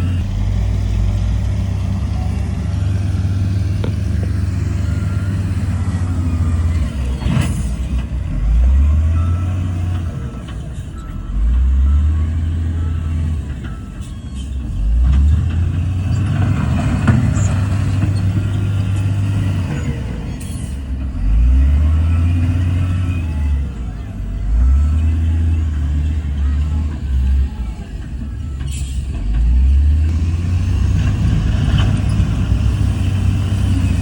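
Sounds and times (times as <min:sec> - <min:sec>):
diesel engine revving: 0:00.0 - 0:34.0.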